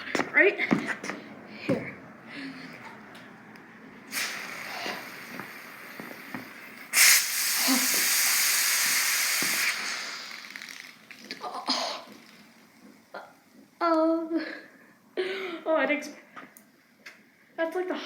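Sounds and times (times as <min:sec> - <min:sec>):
soda bottle bursting and spraying: 0:04.1 - 0:12.6
carbonation hissing: 0:04.1 - 0:12.8.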